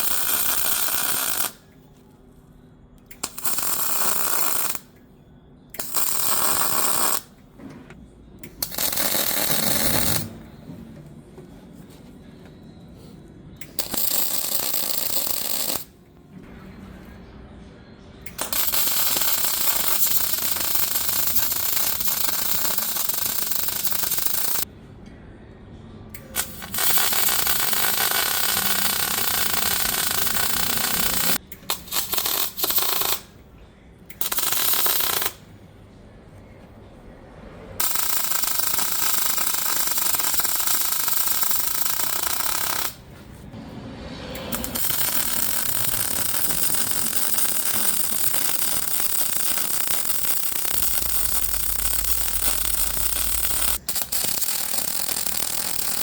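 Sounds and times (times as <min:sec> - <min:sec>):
welding arc crackling and hissing: 0:00.0 - 0:01.6, 0:03.1 - 0:04.9, 0:05.8 - 0:07.3, 0:08.6 - 0:10.3, 0:13.6 - 0:15.9, 0:18.3 - 0:24.6, 0:26.4 - 0:33.3, 0:34.2 - 0:35.4, 0:37.8 - 0:43.1, 0:44.5 - 0:56.0.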